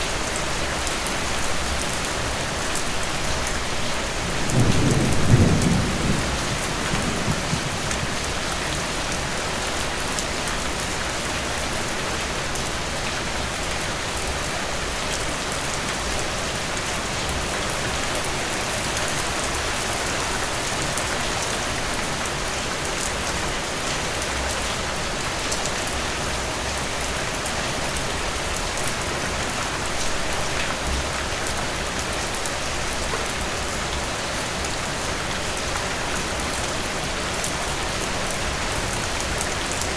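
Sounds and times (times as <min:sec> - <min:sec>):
heavy rain falling: 0:00.0 - 0:39.9
low thunder rumble: 0:04.3 - 0:08.6.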